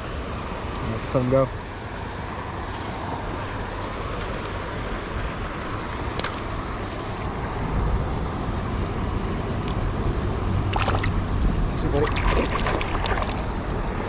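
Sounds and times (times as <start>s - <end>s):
river water rushing: 10.4s - 14.0s.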